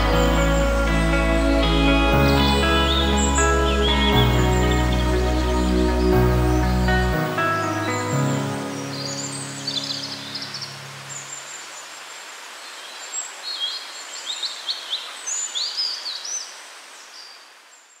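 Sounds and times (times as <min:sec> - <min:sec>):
soft music: 0:00.0 - 0:11.5
outdoor hiss: 0:00.0 - 0:18.0
small birds chirping: 0:00.0 - 0:18.0.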